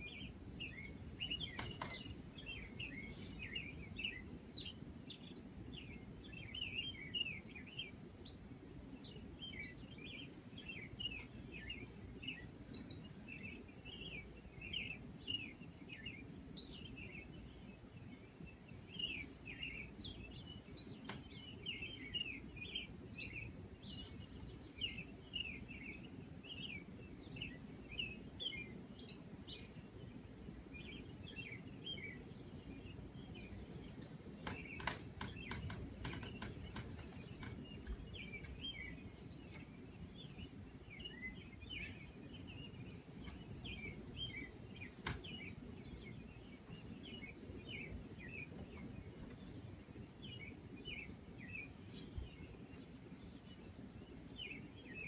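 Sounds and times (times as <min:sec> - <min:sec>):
low background rumble: 0:00.0 - 0:55.0
small birds chirping: 0:00.0 - 0:55.0.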